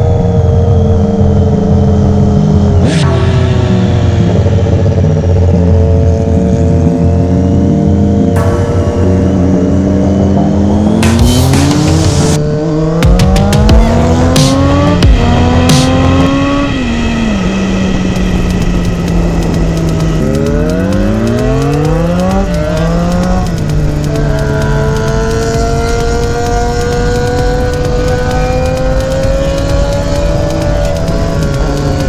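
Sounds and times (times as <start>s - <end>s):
car engine accelerating through gears: 0.0s - 32.0s.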